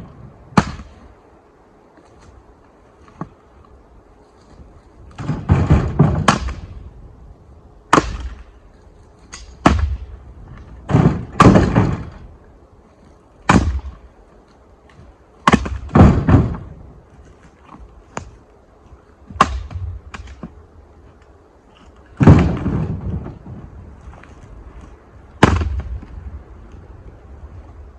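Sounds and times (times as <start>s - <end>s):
firewood thudding and knocking: 0.6s - 1.0s, 5.1s - 6.8s, 7.9s - 8.5s, 9.2s - 12.3s, 13.4s - 14.1s, 15.4s - 18.4s, 19.3s - 20.6s, 21.7s - 26.2s.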